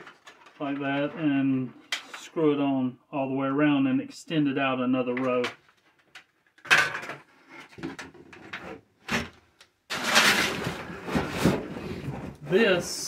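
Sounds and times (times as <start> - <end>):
metal scraping rattle: 9.9 - 11.6.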